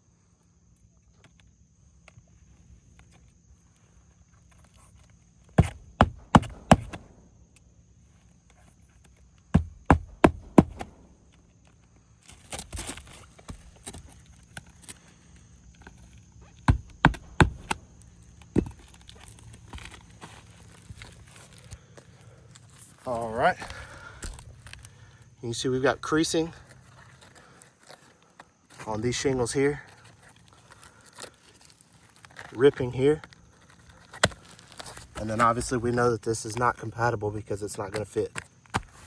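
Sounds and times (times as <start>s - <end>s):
hammer driving nails into shingle: 5.6s - 7.2s, 9.6s - 11.1s, 16.6s - 19.0s.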